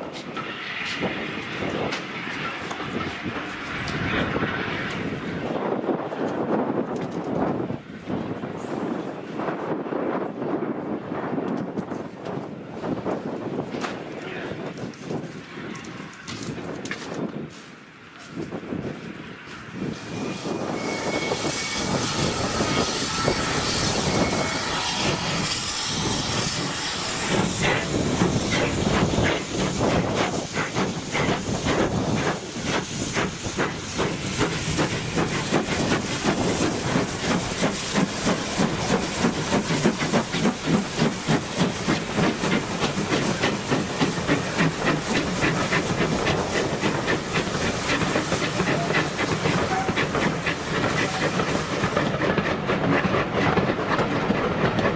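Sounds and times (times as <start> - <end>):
steam locomotive hissing: 19.7 - 54.9.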